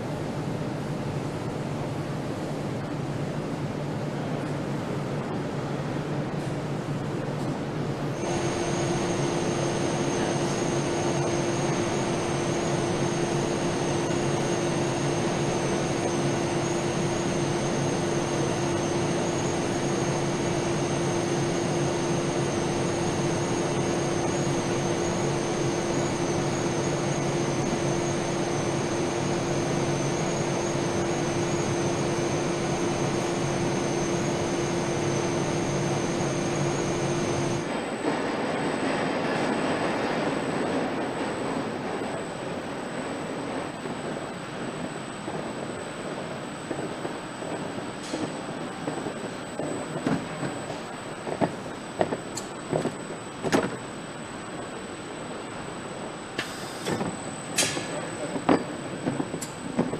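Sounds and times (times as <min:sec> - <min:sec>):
machinery rushing and low hum: 0:00.0 - 0:59.9
high-pitched whines: 0:08.1 - 0:38.0.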